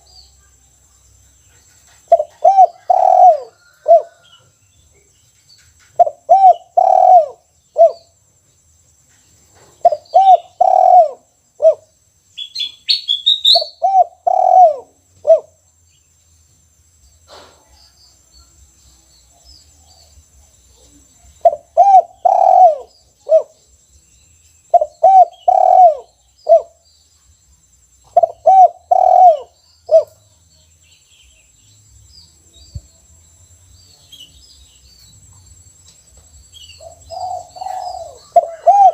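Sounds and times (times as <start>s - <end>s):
dove cooing: 2.1s - 4.3s, 6.0s - 8.1s, 9.8s - 11.9s, 13.5s - 15.6s, 21.4s - 23.6s, 24.7s - 26.8s, 28.1s - 30.2s, 36.8s - 38.9s
high chirping: 9.8s - 15.5s.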